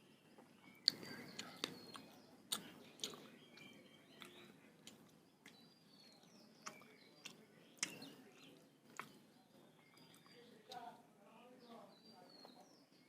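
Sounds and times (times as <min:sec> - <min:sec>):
faint high chirps: 0:00.0 - 0:13.0
person chewing with mouth clicks: 0:00.8 - 0:09.2.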